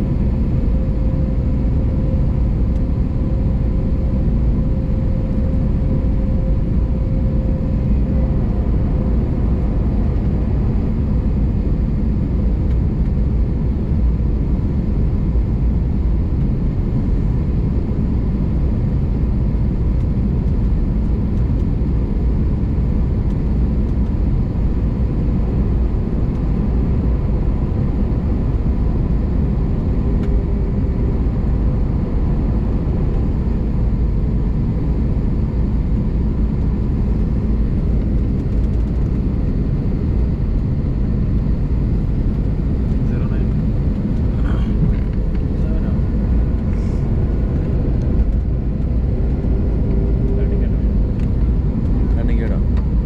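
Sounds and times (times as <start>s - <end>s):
aircraft engines and airflow rumble: 0.0s - 53.0s.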